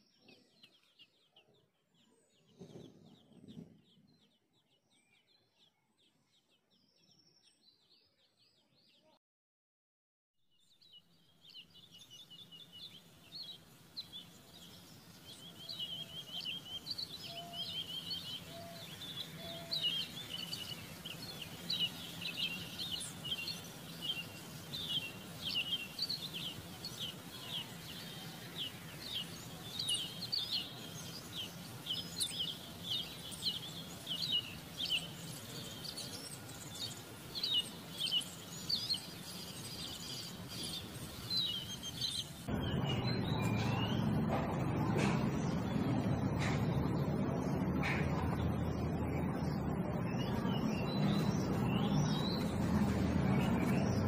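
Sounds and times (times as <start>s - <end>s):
small birds chirping: 0.0s - 9.2s, 10.5s - 54.0s.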